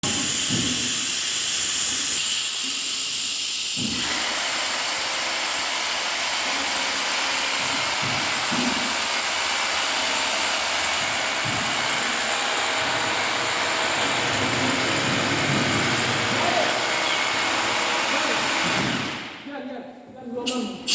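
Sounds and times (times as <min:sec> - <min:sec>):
machinery hissing: 0:12.8 - 0:19.4.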